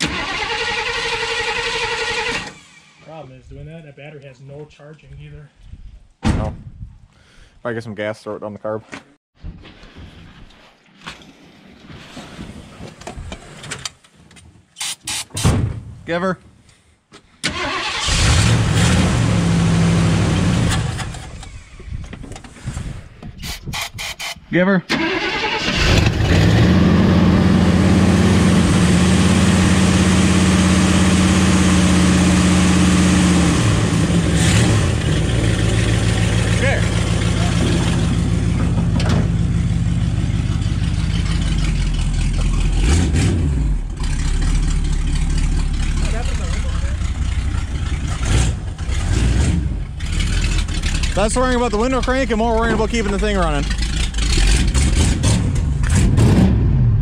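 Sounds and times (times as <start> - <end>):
car engine running: 27.0 - 43.1, 43.7 - 56.1.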